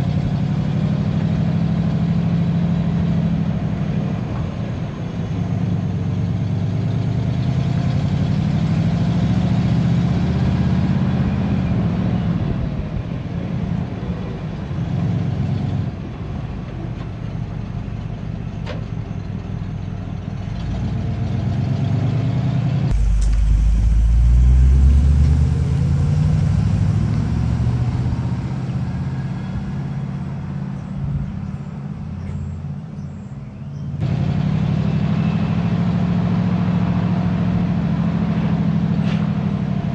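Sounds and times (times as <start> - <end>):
pickup truck engine revving: 22.9 - 30.6.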